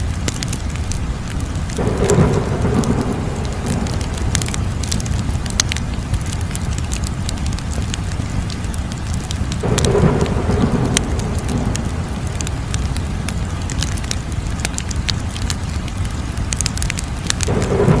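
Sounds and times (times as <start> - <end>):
fire crackling and popping: 0.0 - 18.0
fire flames rumbling: 0.0 - 18.0
rushing fire swell: 1.4 - 14.5.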